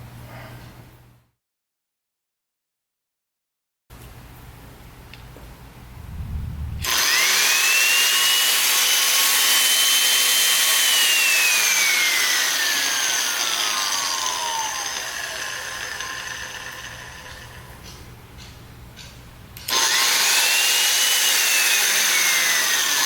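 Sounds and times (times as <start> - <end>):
grinder motor whining: 6.8 - 17.9, 19.7 - 23.0.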